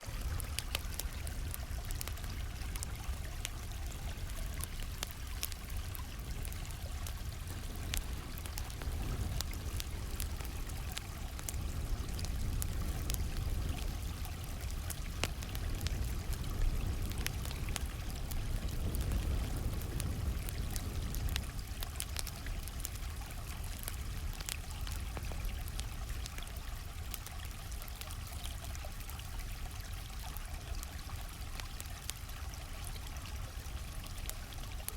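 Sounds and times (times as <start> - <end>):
campfire crackling and popping: 0.0 - 34.9
stream flowing: 0.0 - 34.9.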